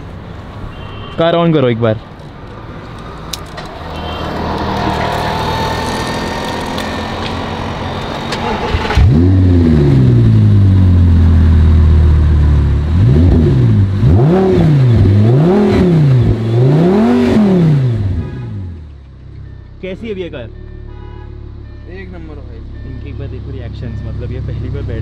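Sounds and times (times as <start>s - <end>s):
sports car engine starting and revving: 3.7s - 19.0s.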